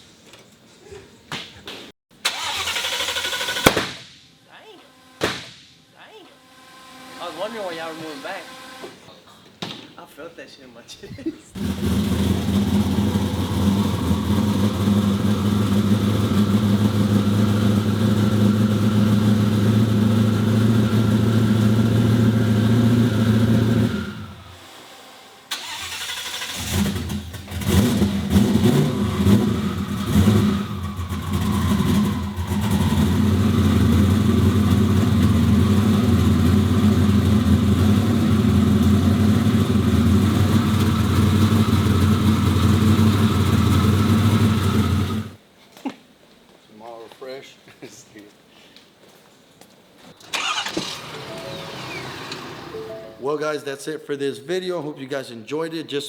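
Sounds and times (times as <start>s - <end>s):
car engine starting: 2.2s - 3.9s, 6.4s - 9.0s, 11.6s - 45.4s, 50.2s - 53.1s
engine throttle blips: 4.8s - 9.1s, 11.6s - 45.4s, 50.2s - 53.2s
car engine idling: 11.6s - 24.7s, 25.5s - 45.4s, 50.2s - 52.8s.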